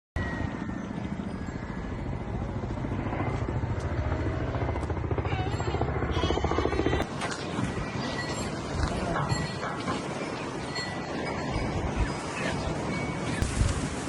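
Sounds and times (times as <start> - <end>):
helicopter rotor chopping: 0.3 - 14.0
faint voices: 5.0 - 13.4.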